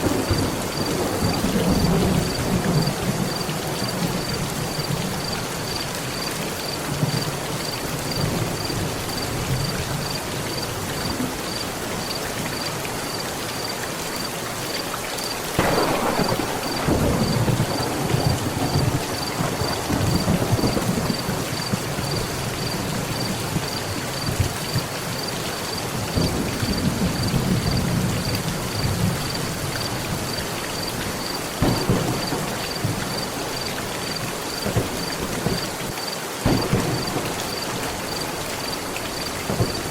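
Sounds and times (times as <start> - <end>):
thunder rumbling and cracking: 0.0 - 6.3, 15.6 - 25.0, 26.0 - 30.4, 31.0 - 35.8, 36.4 - 39.9
heavy rain on a metal roof: 0.0 - 39.9.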